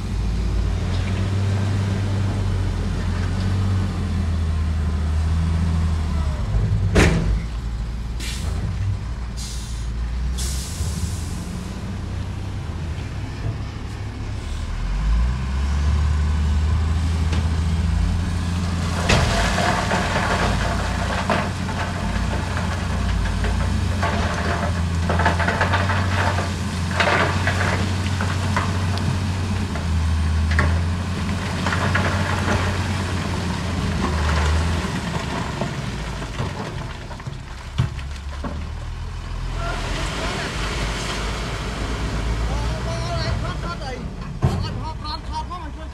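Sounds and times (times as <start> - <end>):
heavy diesel machinery running: 0.0 - 45.9
rock clattering and scraping: 18.7 - 41.4.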